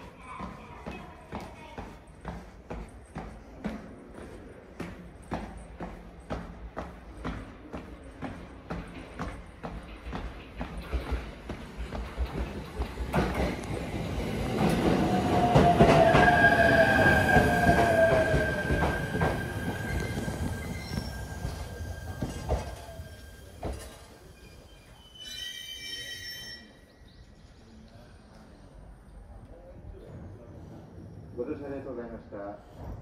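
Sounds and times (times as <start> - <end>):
train rumble: 0.0 - 24.6
train wheels squealing: 14.7 - 27.2.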